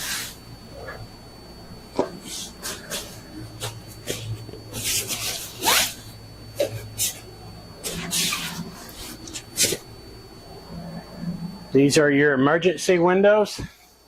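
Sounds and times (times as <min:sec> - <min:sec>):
faint low hum: 0:00.3 - 0:14.0
rubbing and rustling handling noise: 0:02.0 - 0:09.9.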